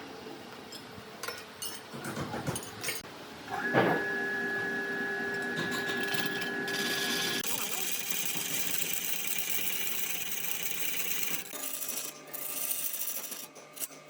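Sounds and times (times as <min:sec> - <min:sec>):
workshop handling knocks and clicks: 0:01.3 - 0:03.0
power tool running: 0:03.6 - 0:13.4.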